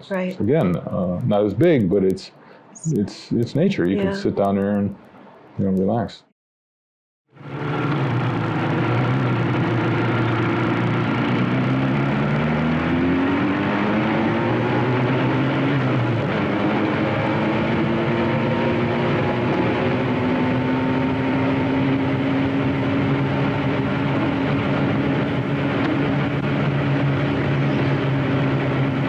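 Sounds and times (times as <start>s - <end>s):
motorcycle engine accelerating: 7.3s - 29.0s.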